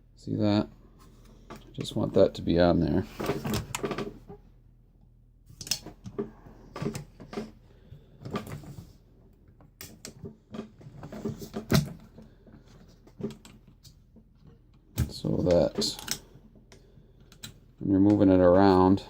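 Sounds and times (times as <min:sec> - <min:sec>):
knocks and clicks of handling: 0:03.1 - 0:04.4, 0:05.5 - 0:18.8.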